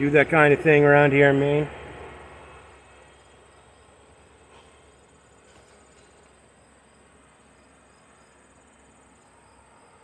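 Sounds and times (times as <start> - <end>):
crickets chirring: 2.6 - 10.0.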